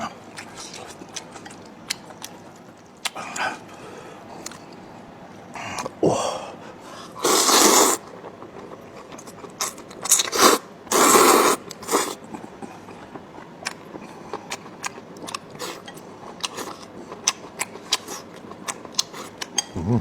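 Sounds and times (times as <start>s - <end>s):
crisp chewing clicks: 0.4s - 3.5s
loud eating slurps: 7.2s - 8.1s, 9.6s - 12.2s.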